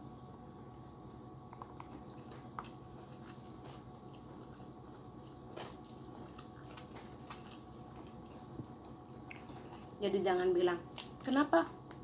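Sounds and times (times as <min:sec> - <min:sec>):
steady low hum: 0:00.0 - 0:12.0
person chewing food: 0:00.8 - 0:10.0.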